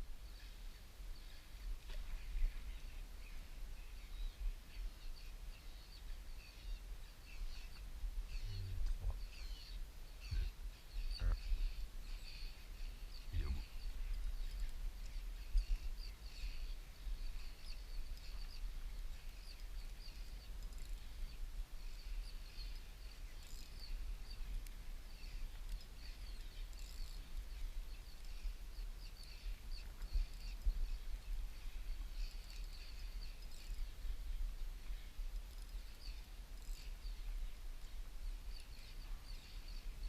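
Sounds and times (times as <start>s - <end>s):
steady low rumble: 7.5s - 9.4s, 13.2s - 15.8s.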